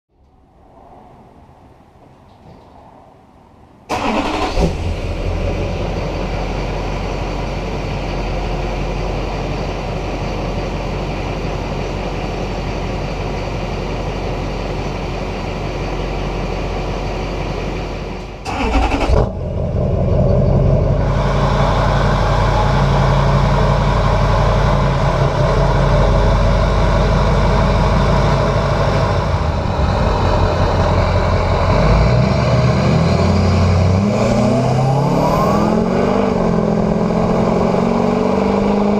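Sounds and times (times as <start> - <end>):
diesel engine idling: 3.9 - 38.9.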